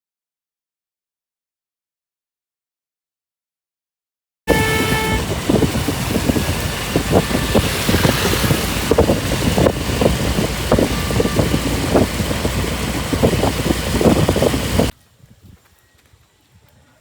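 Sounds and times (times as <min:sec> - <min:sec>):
road and engine noise: 0:04.5 - 0:15.0.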